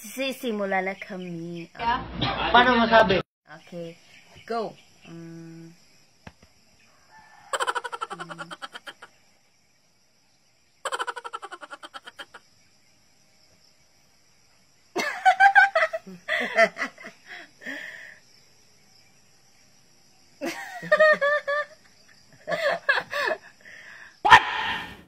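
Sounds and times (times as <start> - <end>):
insect chirring: 3.5 - 24.4
women laughing: 7.5 - 9.1, 10.9 - 12.4, 15.0 - 17.8, 20.4 - 23.6.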